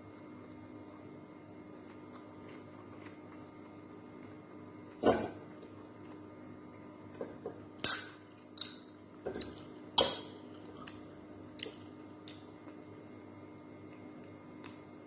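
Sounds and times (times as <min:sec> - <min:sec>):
crunchy chewing: 0:01.7 - 0:05.0.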